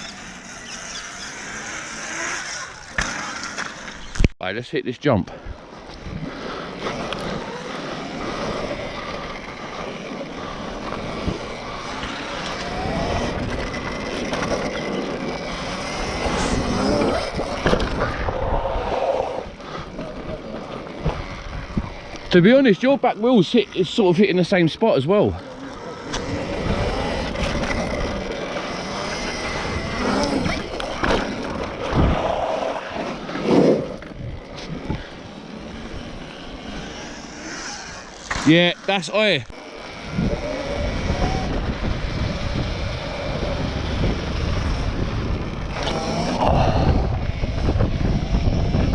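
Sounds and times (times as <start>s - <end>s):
electric dirt bike rushing: 0.0s - 4.3s, 5.2s - 48.9s
electric motor whining: 0.0s - 4.3s, 5.8s - 24.4s, 25.3s - 48.9s
tyre noise: 0.0s - 4.3s, 5.6s - 48.9s
wind: 0.0s - 48.9s.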